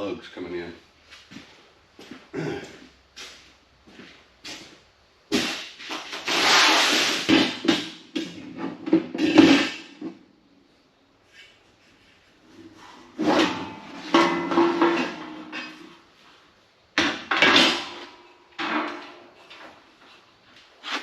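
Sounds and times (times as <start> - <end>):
metal parts knocking and clunking: 7.3 - 10.2, 12.6 - 16.1, 17.0 - 19.9.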